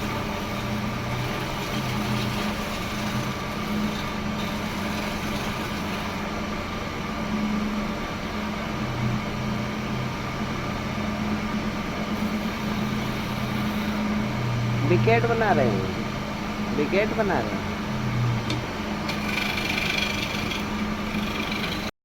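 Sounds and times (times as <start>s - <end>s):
electric motor humming: 0.0s - 6.4s, 12.1s - 21.9s.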